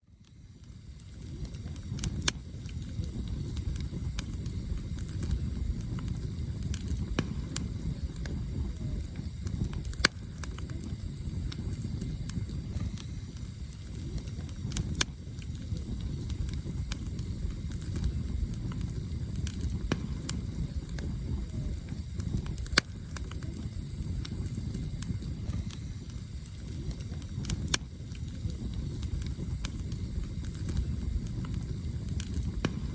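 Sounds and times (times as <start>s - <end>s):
burning logs crackling and popping: 0.0s - 32.9s
campfire flames rumbling: 0.0s - 32.9s.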